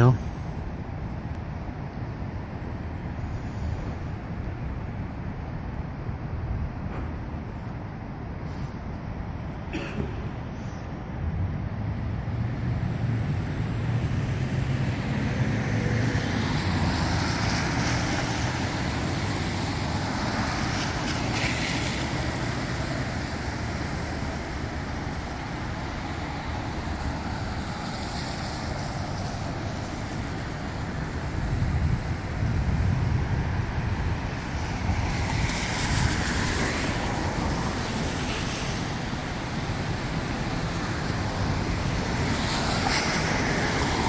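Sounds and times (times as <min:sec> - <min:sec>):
wind on microphone: 0:30.5 - 0:44.0.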